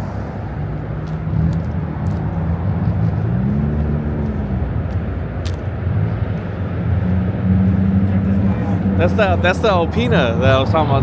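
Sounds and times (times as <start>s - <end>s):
car engines idling: 0.0s - 11.0s
engine revving: 1.1s - 11.0s.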